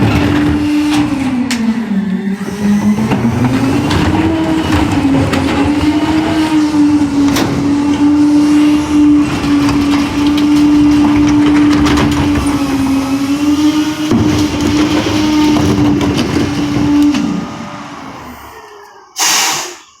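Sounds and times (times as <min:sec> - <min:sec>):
garbage truck engine idling: 0:00.0 - 0:20.0
hydraulic packer compacting trash: 0:00.0 - 0:20.0
trash cracking and crunching: 0:02.4 - 0:18.0.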